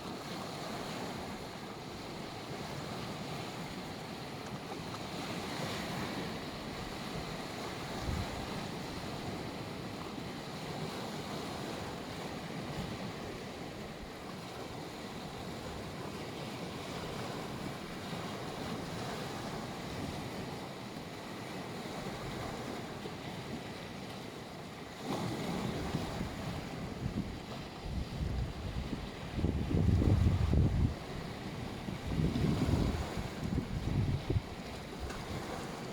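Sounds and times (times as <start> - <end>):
waves washing onto beach: 0.0 - 35.9
wind rumble on microphone: 5.1 - 10.0, 25.0 - 35.9.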